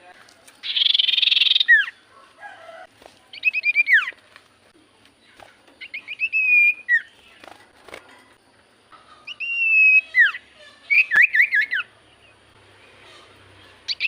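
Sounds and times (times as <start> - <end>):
bird whistled notes: 9.3 - 11.9.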